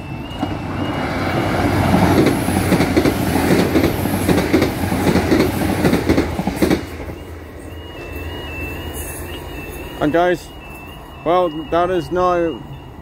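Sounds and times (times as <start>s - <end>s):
train wheels clattering over rail joints: 1.6s - 7.2s.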